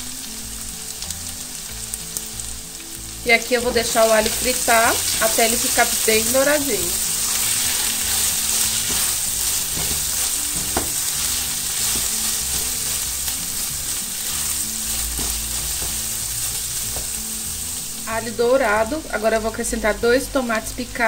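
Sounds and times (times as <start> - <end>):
food sizzling in fat: 0.0 - 21.0
spatula scraping metal pan: 6.8 - 13.4.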